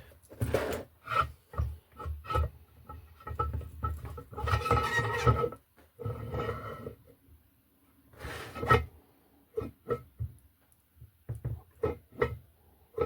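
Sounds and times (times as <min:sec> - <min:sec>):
rubbing and scraping handling noises: 0:00.0 - 0:07.0, 0:08.1 - 0:08.9.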